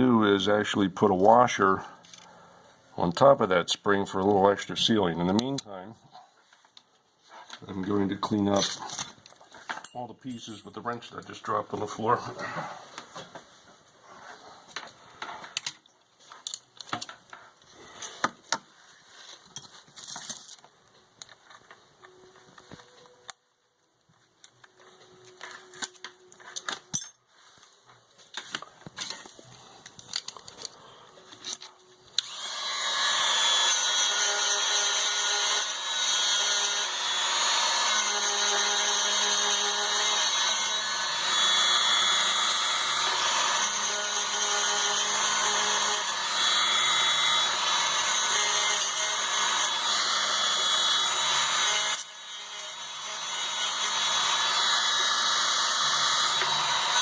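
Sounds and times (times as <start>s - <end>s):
clicks of small parts handled: 14.8s - 17.4s, 28.3s - 32.3s
power tool running: 32.2s - 57.0s.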